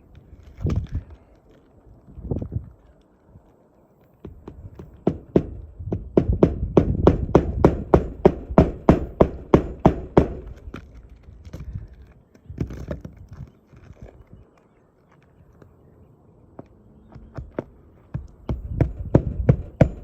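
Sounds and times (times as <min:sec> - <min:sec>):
hammer driving nails: 0:04.3 - 0:10.7, 0:18.2 - 0:20.0.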